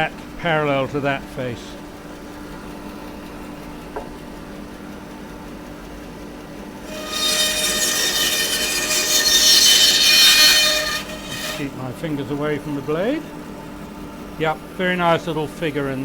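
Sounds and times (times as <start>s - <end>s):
bandsaw motor humming: 6.5s - 16.0s
bandsaw blade cutting wood: 6.8s - 11.8s.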